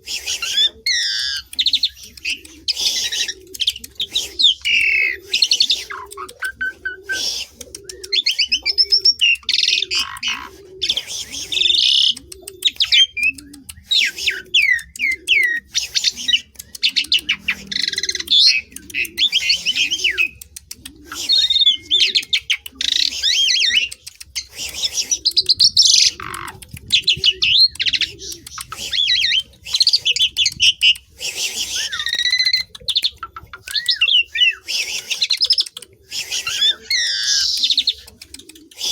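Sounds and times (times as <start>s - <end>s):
starling singing varied song: 0.0s - 38.9s.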